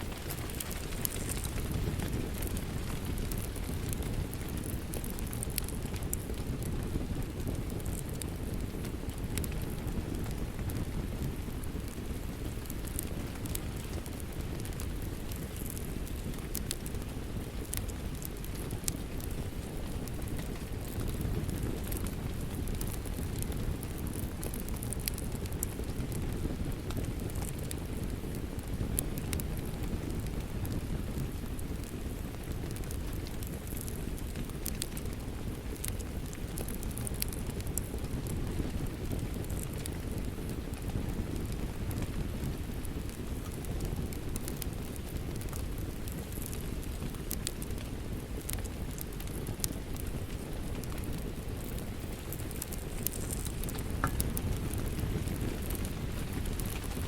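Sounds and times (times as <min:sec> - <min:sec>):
fire popping: 0:00.0 - 0:57.0
steady rain: 0:00.0 - 0:57.0
wood fire crackling: 0:00.0 - 0:57.0
rain rushing: 0:52.3 - 0:57.0.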